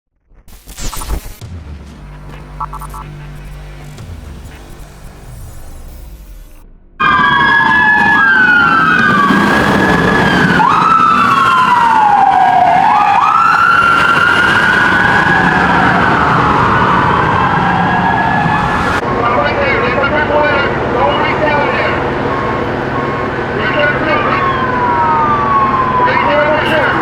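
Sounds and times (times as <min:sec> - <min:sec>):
steady rumble: 0:00.2 - 0:07.4, 0:16.5 - 0:24.2
police sirens wailing: 0:01.9 - 0:27.0.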